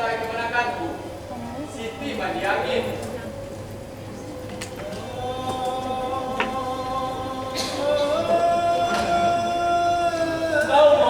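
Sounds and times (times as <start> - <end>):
person singing long held notes: 4.8 - 11.0.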